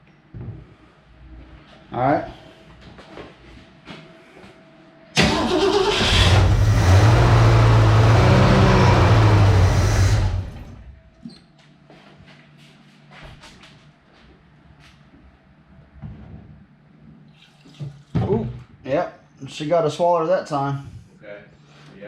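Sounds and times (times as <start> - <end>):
car engine starting and running: 5.2 - 11.0.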